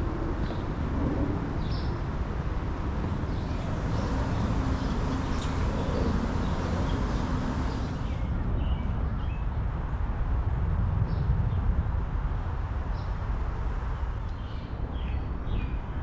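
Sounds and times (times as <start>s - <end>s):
steady low rumble: 3.0s - 8.5s.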